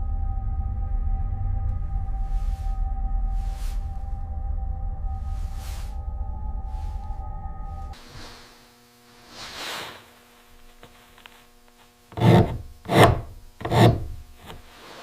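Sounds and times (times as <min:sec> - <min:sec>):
soft swish: 0:05.1 - 0:07.2
heavy strokes on wood: 0:08.0 - 0:11.0, 0:12.1 - 0:15.0.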